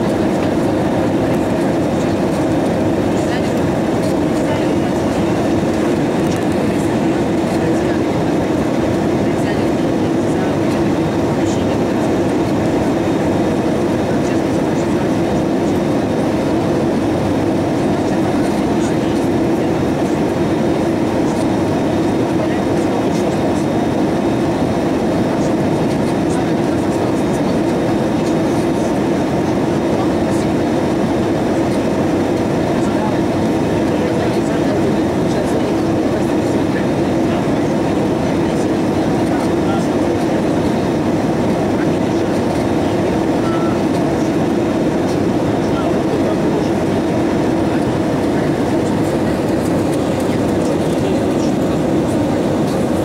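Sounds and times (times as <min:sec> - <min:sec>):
airliner cabin engine rumble: 0:00.0 - 0:53.0.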